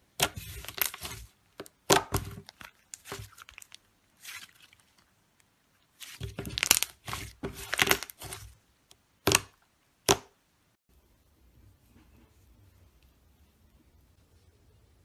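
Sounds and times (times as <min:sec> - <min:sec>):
slime squishing and crackling: 0:00.1 - 0:05.1, 0:05.8 - 0:08.6.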